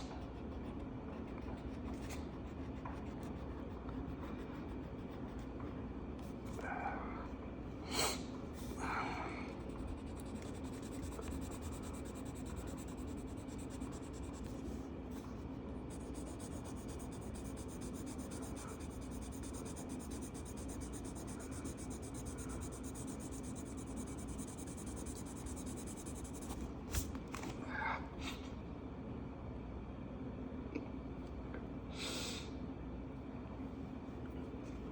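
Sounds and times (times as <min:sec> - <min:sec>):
marker rubbing on paper: 0:00.0 - 0:05.5, 0:09.5 - 0:26.6
faint steady hum: 0:00.0 - 0:34.9.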